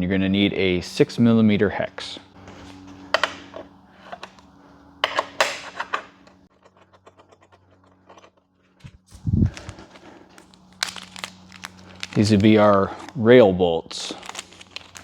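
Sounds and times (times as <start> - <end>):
steady low hum: 0.0 - 15.0
hex key clicking and scraping metal: 2.4 - 8.8.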